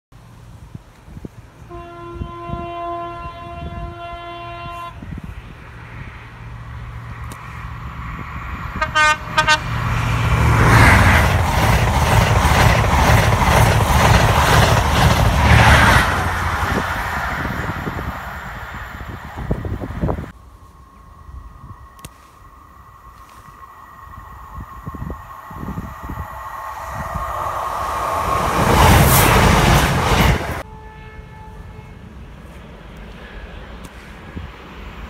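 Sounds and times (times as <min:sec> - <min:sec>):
train passing at speed: 0:00.2 - 0:35.0
train horn: 0:01.6 - 0:05.2, 0:08.8 - 0:10.0, 0:30.5 - 0:32.2.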